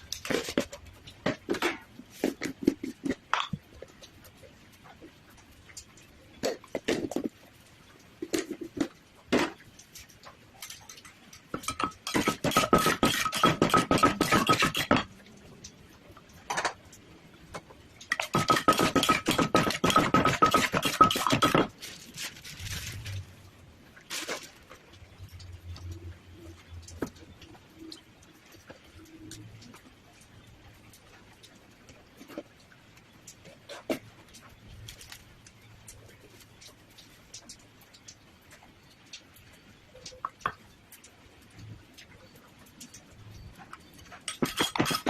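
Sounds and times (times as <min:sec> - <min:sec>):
utensils clattering on a dish: 0:10.6 - 0:15.1, 0:18.1 - 0:21.7, 0:44.1 - 0:45.0.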